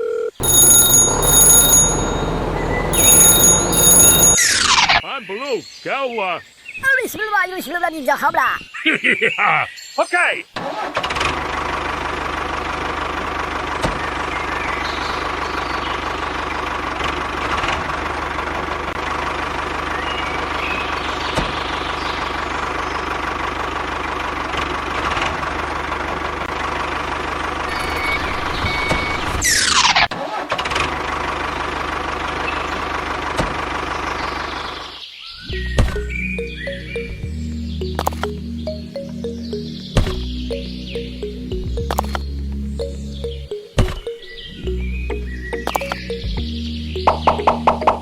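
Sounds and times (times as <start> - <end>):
small motor droning: 0.4 - 4.6.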